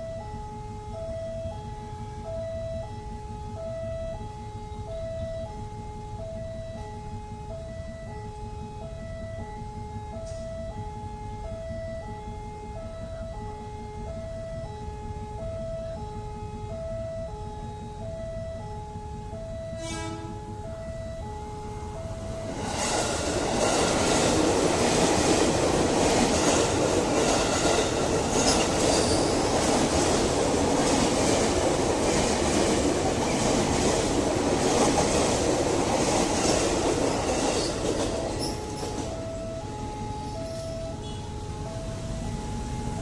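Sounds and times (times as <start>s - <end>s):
level crossing warning bell: 0.0s - 43.0s
train wheels clattering over rail joints: 22.6s - 39.2s.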